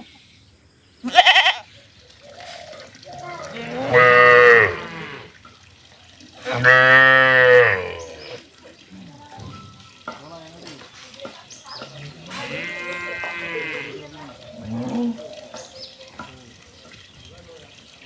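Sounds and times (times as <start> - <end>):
cow mooing: 3.5 - 5.3, 6.4 - 8.4, 12.2 - 15.2.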